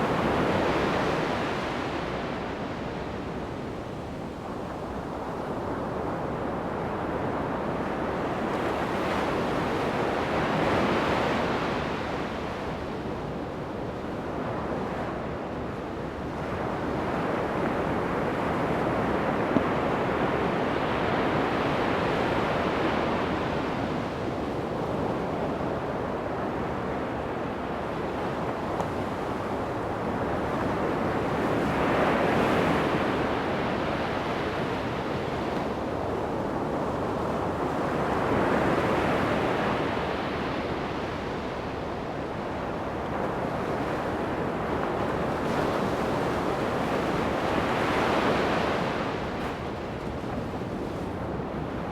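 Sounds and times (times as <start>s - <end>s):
surf breaking on a beach: 16.8s - 51.9s.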